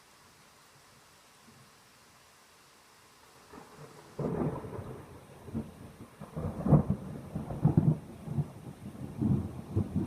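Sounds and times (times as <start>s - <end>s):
faint thunderstorm hiss: 0.0s - 10.0s
thunderclap rumbling crackles: 3.5s - 10.0s.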